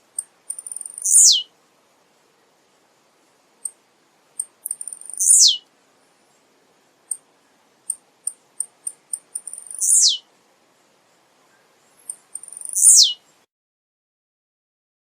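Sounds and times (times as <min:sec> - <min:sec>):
bird singing high ticks: 0:00.1 - 0:01.5, 0:03.6 - 0:03.8, 0:04.4 - 0:05.7, 0:07.0 - 0:10.3, 0:11.5 - 0:13.3.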